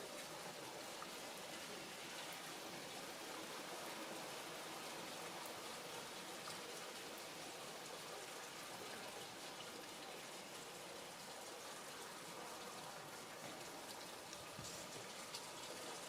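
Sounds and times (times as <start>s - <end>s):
light rain hiss: 0.0s - 16.0s
raindrop ticks: 14.3s - 15.6s.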